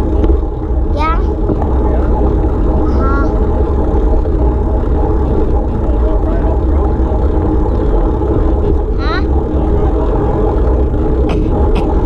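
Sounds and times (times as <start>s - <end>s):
engine running: 0.0s - 12.0s
heavy low rumble: 0.0s - 12.0s.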